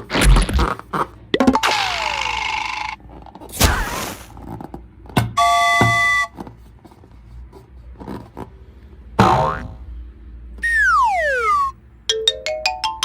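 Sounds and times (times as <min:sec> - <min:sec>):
cartoon hiss: 0:03.6 - 0:04.3
sharp hit: 0:03.6 - 0:04.3
horn-like tone: 0:05.4 - 0:06.4.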